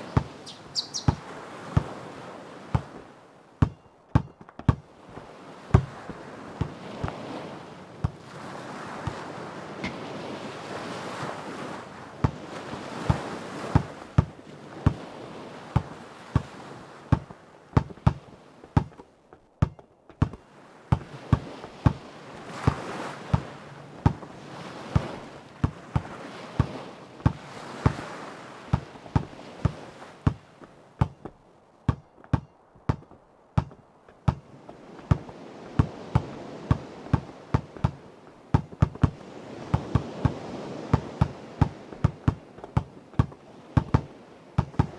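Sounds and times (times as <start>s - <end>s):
ocean waves: 0.0s - 44.9s
basketball bouncing on hard court: 1.0s - 1.2s, 3.6s - 4.8s, 17.1s - 18.2s, 18.8s - 19.0s, 19.6s - 22.0s, 28.7s - 30.4s, 31.0s - 34.4s, 35.1s - 44.9s.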